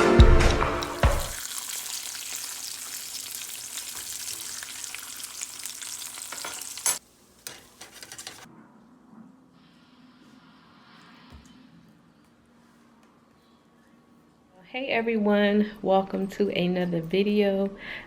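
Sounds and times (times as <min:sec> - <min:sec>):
food sizzling in a pan: 0:00.8 - 0:08.5.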